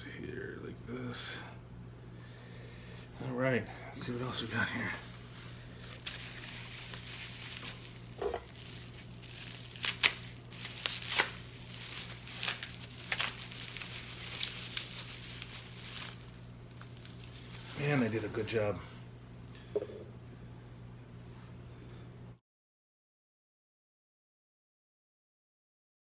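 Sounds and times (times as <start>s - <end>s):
steady low hum: 0.0s - 22.4s
packaging crinkling and tearing: 4.3s - 18.6s.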